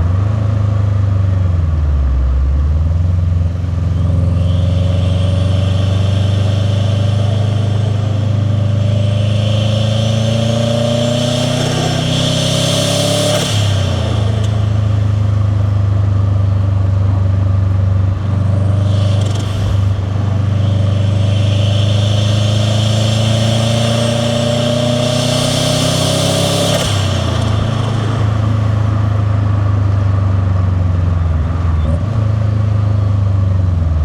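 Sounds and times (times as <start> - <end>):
car engine accelerating: 0.0 - 34.0
turbo and intake hiss: 3.7 - 16.9, 18.1 - 29.8.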